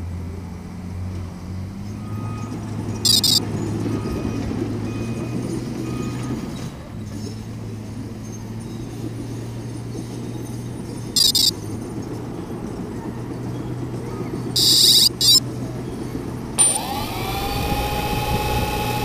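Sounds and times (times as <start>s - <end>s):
drone propellers humming: 3.1s - 3.4s, 11.2s - 11.5s, 14.6s - 15.4s, 16.6s - 19.0s
high-pitched burst: 3.1s - 3.4s, 11.2s - 11.5s, 14.6s - 15.4s.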